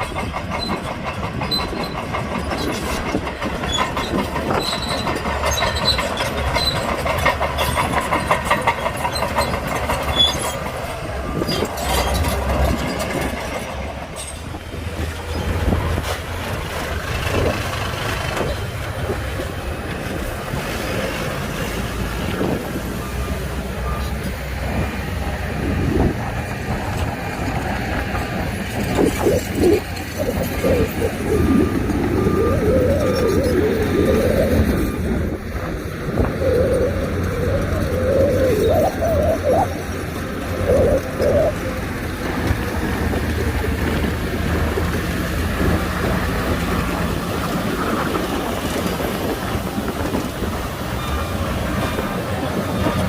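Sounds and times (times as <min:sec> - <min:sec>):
heavy machinery engine rumble: 0:00.0 - 0:53.0
wavering squeal: 0:09.0 - 0:13.3, 0:28.9 - 0:42.2.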